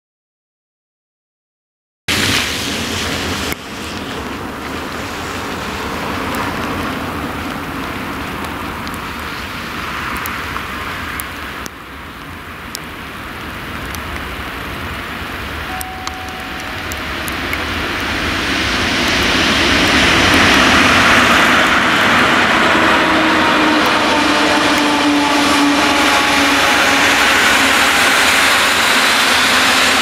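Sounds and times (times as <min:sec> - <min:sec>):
train wheels rumbling on rails: 0:15.4 - 0:30.0.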